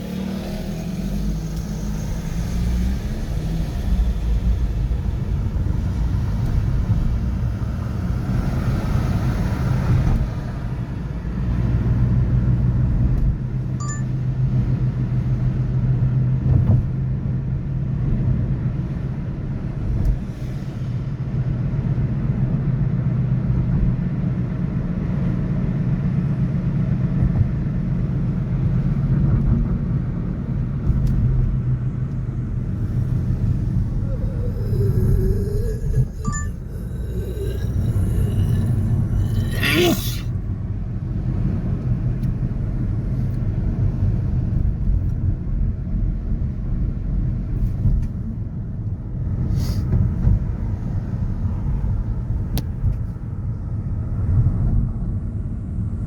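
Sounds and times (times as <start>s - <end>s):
engine hum: 0.0s - 56.0s
traffic rumble: 0.0s - 56.0s.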